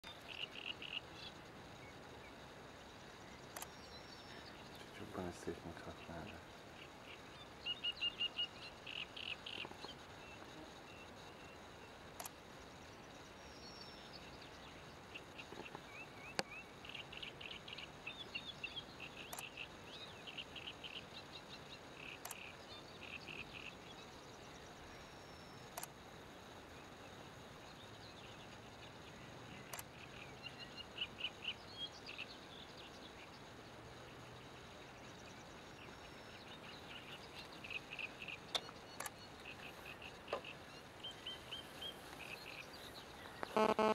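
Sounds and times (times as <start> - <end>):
small birds chirping: 0.0 - 43.9
sharp clicks: 3.5 - 3.8, 38.5 - 39.2.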